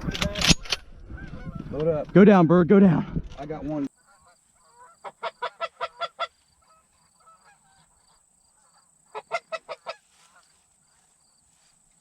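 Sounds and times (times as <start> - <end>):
geese honking: 1.1 - 1.8, 3.8 - 11.2.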